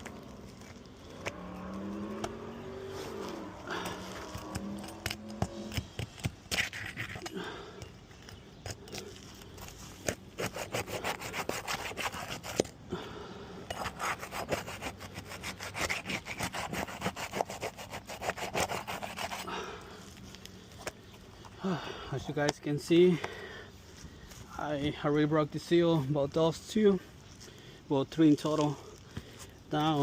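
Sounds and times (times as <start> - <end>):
roof shingles scraping and rasping: 0.0 - 7.2.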